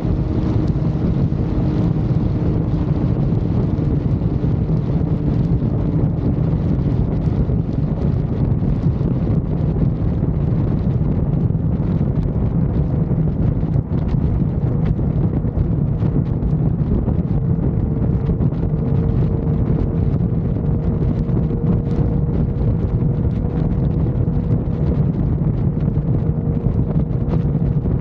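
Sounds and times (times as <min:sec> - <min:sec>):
motorcycle engine drone: 0:00.0 - 0:28.0
road noise: 0:00.0 - 0:28.0
wind buffeting microphone: 0:00.0 - 0:28.0.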